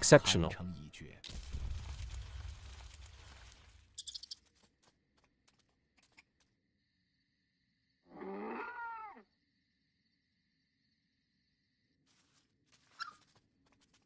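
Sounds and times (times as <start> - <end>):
animal call with bending overtones: 8.1 - 9.2.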